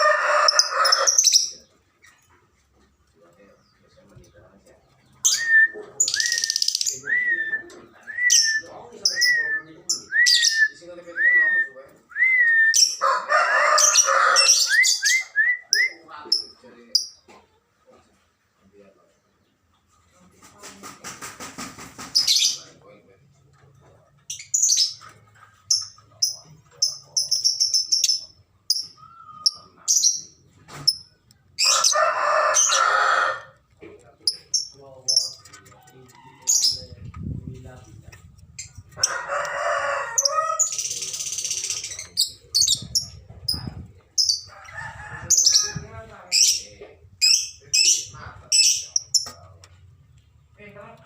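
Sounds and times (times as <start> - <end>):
lovebirds chirping: 3.2 - 11.1, 24.2 - 33.0, 33.6 - 39.0, 40.2 - 44.7, 45.3 - 50.9.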